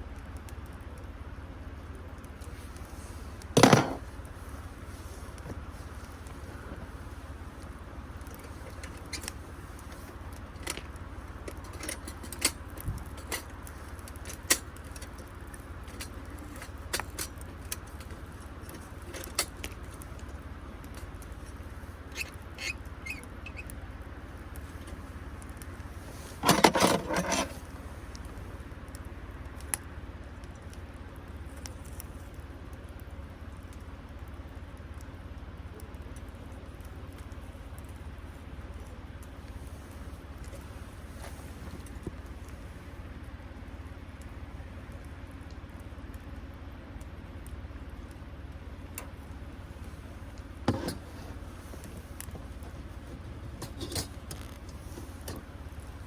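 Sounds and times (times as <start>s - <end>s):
campfire crackling and popping: 0.0s - 26.4s, 27.6s - 50.7s
loud clatter: 3.6s - 4.1s.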